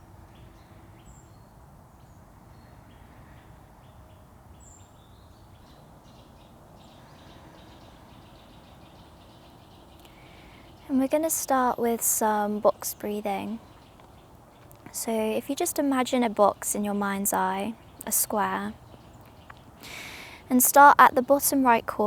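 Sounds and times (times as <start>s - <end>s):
faint bird chirps: 0.0s - 15.4s
low steady background noise: 0.0s - 22.0s.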